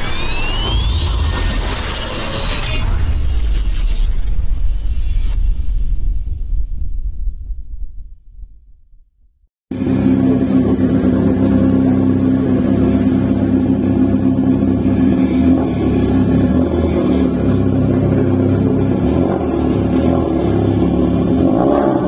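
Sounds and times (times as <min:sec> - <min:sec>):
turbocharged car engine running loudly: 0:00.0 - 0:04.3, 0:09.7 - 0:22.0.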